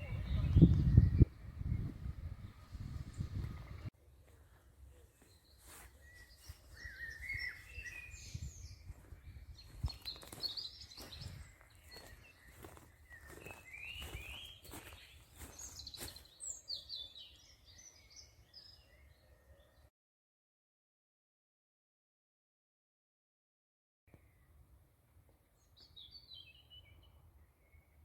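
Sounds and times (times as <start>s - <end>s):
low outdoor rumble: 0.0s - 4.5s
songbirds chirping: 0.0s - 19.9s, 24.1s - 28.0s.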